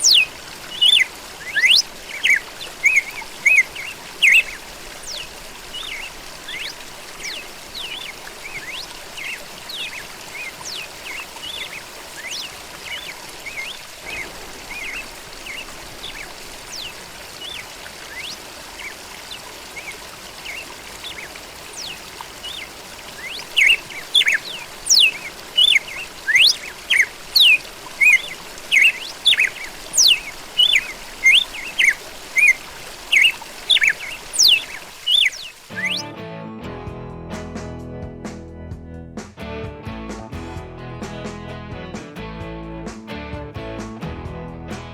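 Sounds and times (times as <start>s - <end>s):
background hiss: 0.0s - 36.0s
loud bird calling: 0.0s - 36.1s
songbirds chirping: 0.0s - 36.2s.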